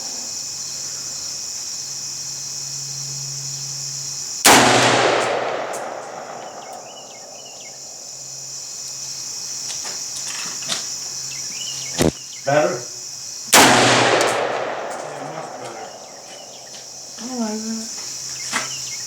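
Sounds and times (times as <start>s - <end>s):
insects buzzing: 0.0s - 19.0s
rifle shot echoing: 4.5s - 8.1s, 13.5s - 16.7s.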